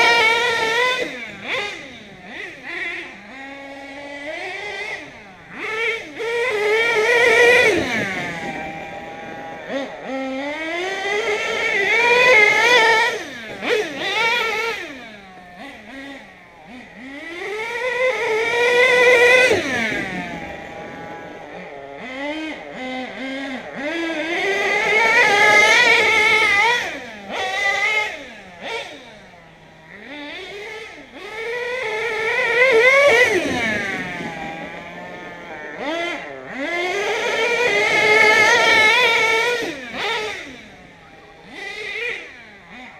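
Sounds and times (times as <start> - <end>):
small engine revving hard: 0.0 - 42.9.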